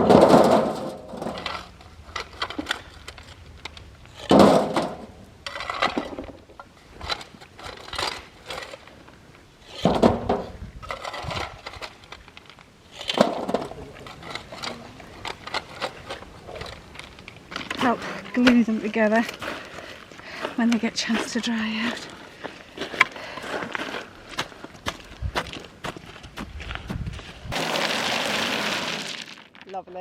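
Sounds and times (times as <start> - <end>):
rocks crashing into cage: 0.0 - 2.4, 4.2 - 6.4, 13.0 - 14.6, 27.5 - 29.6.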